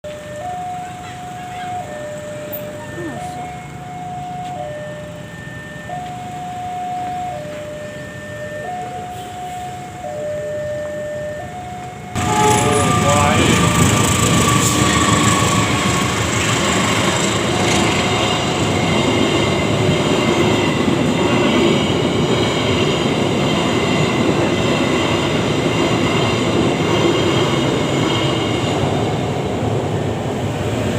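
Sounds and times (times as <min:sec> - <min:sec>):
train wheels rumbling on rail: 0:11.8 - 0:30.9
wheels squealing: 0:12.2 - 0:23.1.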